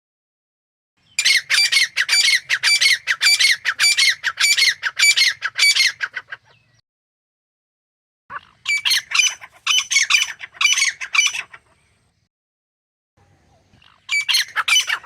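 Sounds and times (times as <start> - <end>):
bird harsh repeated calls: 1.0 - 6.8, 8.3 - 12.3, 13.6 - 15.0.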